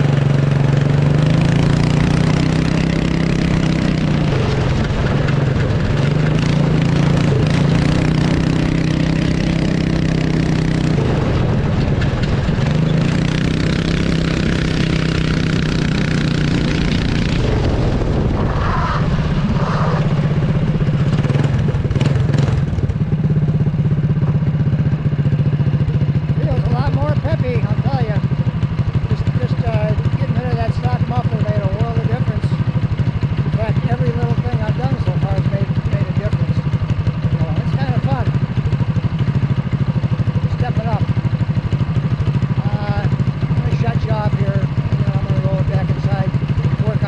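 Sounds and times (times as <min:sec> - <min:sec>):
small engine revving loudly: 0:00.0 - 0:04.8.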